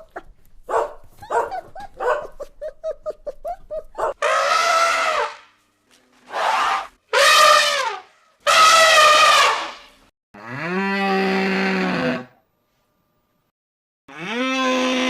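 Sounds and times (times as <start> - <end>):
low mooing call: 10.4 - 12.4, 14.1 - 15.0.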